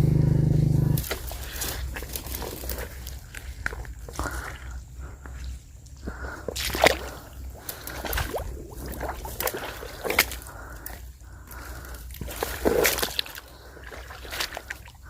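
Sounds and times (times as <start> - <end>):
water sloshing and dripping: 6.0 - 15.0.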